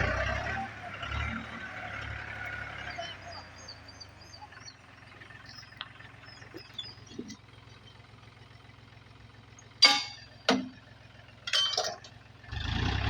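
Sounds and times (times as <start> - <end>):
tractor engine droning: 0.0 - 13.0
birds chirping: 0.7 - 8.7.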